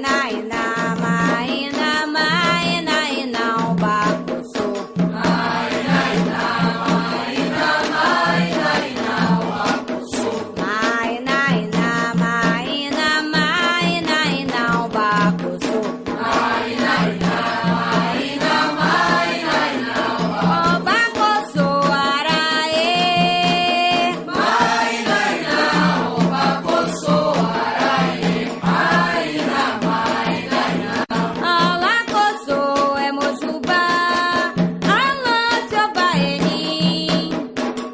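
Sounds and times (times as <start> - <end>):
steady drum beat: 0.0 - 37.9
group of voices chanting: 5.2 - 10.5, 16.2 - 20.5, 24.3 - 31.3.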